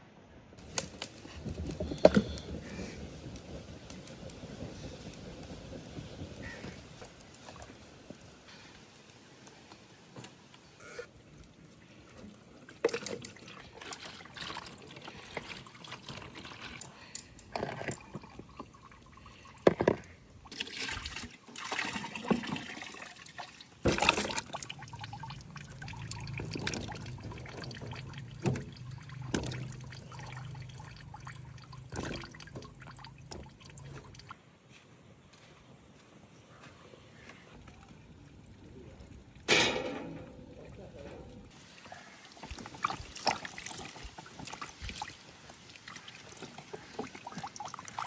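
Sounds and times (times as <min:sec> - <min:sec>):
water pouring and splashing: 0:00.6 - 0:10.5, 0:11.4 - 0:34.4, 0:37.4 - 0:48.0
handling knocks and clatter: 0:39.4 - 0:41.5.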